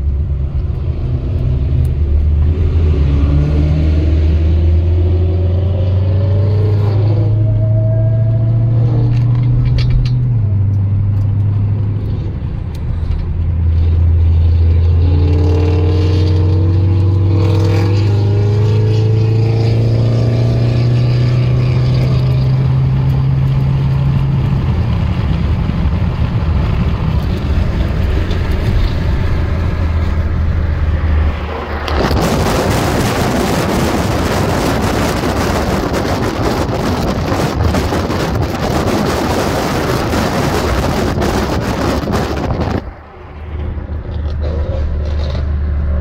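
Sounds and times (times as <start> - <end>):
low engine drone: 0.0 - 46.0
road noise: 0.0 - 46.0
wind rushing past open window: 0.2 - 46.0.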